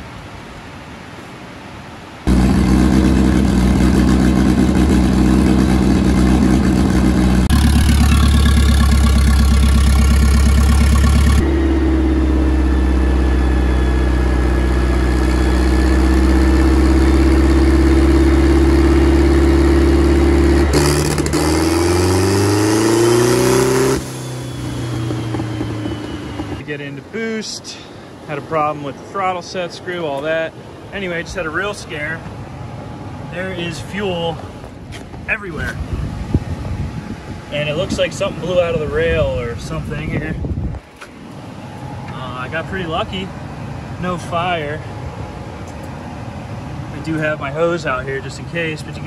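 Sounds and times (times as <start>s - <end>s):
car engine idling and revving: 2.3s - 26.6s, 40.8s - 49.0s.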